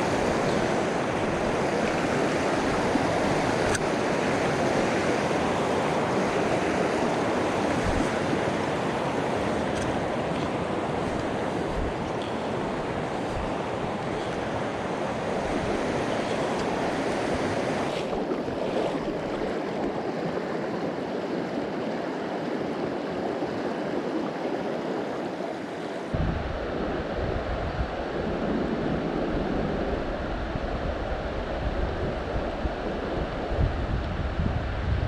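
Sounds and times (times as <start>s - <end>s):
river water rushing over rocks: 0.0s - 27.0s
wind rumble on microphone: 0.0s - 35.0s.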